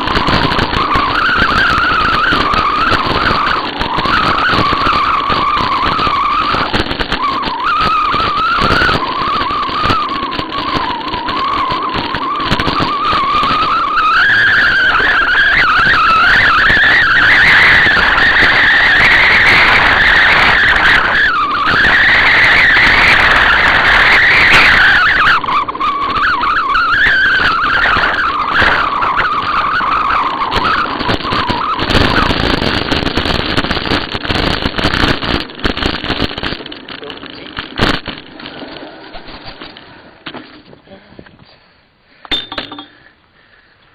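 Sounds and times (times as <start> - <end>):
high wavering whistle: 0.0 - 32.3
bicycle rolling noise: 0.0 - 43.9.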